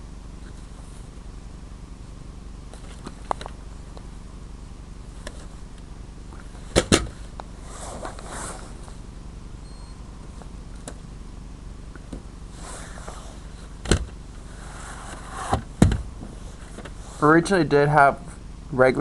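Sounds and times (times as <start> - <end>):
steady low hum: 0.0 - 19.0
rustling: 6.3 - 9.0.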